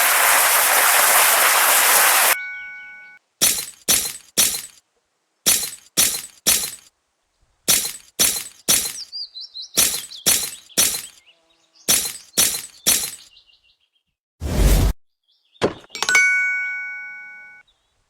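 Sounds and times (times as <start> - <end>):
sharp loud impacts: 3.4 - 4.8, 5.5 - 6.9, 7.7 - 9.0, 9.8 - 11.2, 11.9 - 13.3
bird chirping faintly: 8.4 - 14.1.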